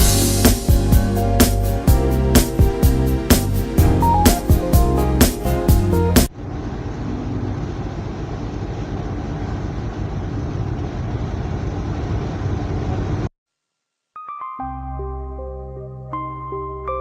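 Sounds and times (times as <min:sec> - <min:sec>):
soft music: 0:00.0 - 0:06.3, 0:14.2 - 0:17.0.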